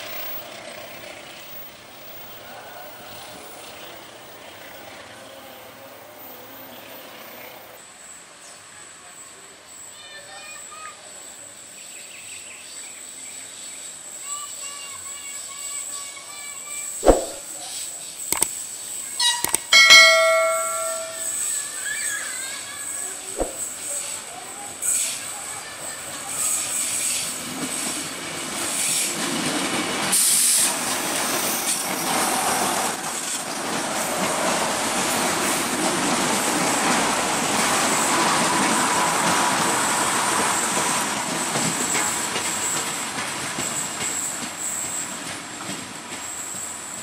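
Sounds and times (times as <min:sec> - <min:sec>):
train wheels rumbling and clattering: 0:26.1 - 0:47.0.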